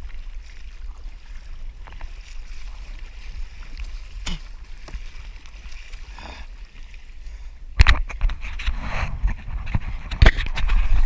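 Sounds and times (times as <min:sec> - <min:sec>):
water sloshing against kayak: 0:00.0 - 0:11.0
water splashes: 0:00.0 - 0:11.0
wind on microphone: 0:07.2 - 0:11.0.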